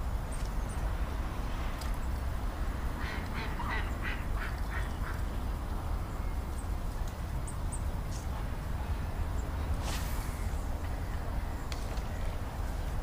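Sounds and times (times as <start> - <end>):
duck quacking: 3.0 - 5.2.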